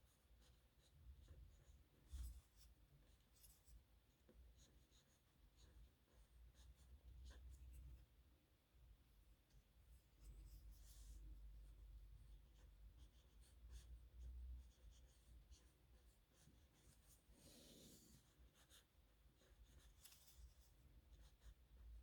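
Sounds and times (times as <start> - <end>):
pen nib scratching on paper: 12.2 - 22.0.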